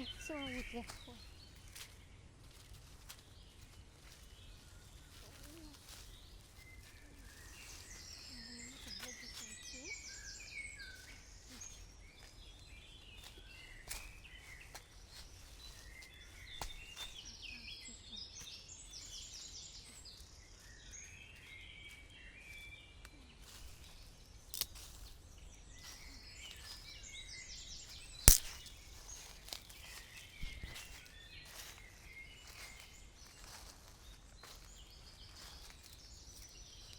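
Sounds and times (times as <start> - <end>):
birds chirping: 0.0 - 36.9
sharp clicks: 28.2 - 28.6.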